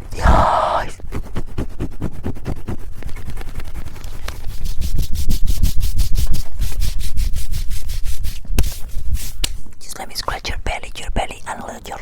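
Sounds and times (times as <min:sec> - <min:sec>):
rubbing on microphones: 0:01.0 - 0:09.7.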